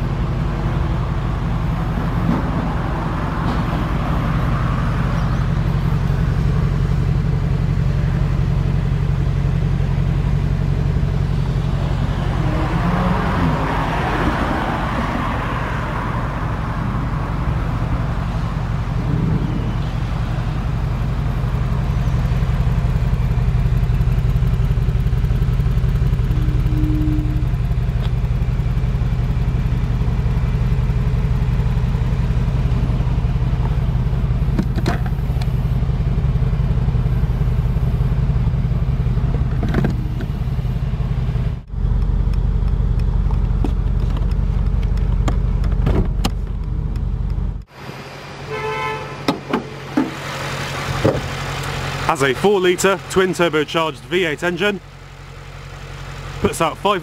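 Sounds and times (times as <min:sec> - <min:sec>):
engine idling with deep rumble: 0:00.0 - 0:57.0
short beeps: 0:26.3 - 0:27.6.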